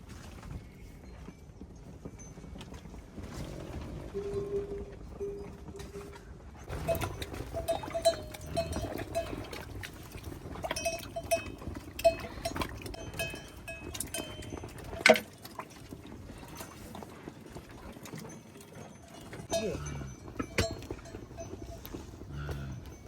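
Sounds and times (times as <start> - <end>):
livestock bells clanking: 6.7 - 17.3, 18.0 - 23.0.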